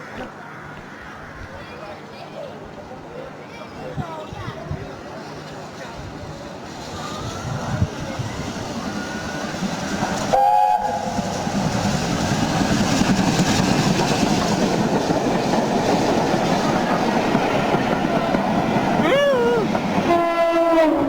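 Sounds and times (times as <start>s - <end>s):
train running on rails: 0.0s - 21.0s
train horn two-note blast: 10.3s - 11.2s, 20.1s - 21.0s.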